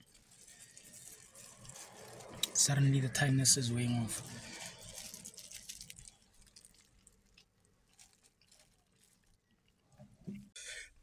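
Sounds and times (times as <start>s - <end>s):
faint chewing: 0.0s - 2.6s, 4.4s - 10.3s.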